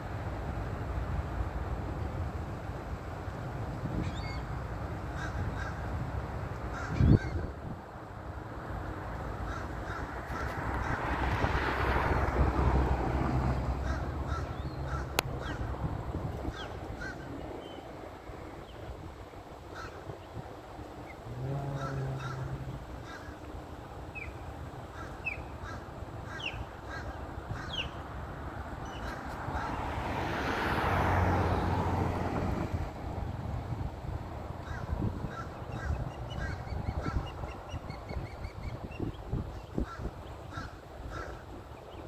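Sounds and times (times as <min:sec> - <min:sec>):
birds calling: 0:13.8 - 0:19.0, 0:19.6 - 0:28.0, 0:34.6 - 0:42.0
brief low hum: 0:21.2 - 0:22.9.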